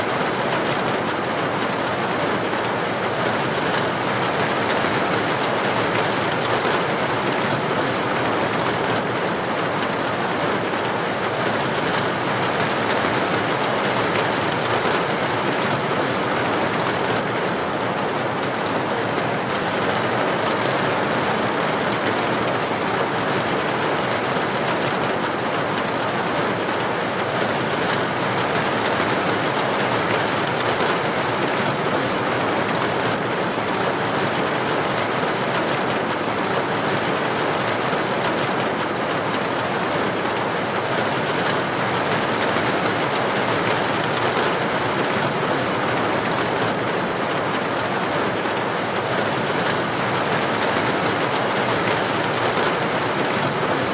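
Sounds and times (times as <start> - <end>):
heavy rain on street: 0.0 - 53.9.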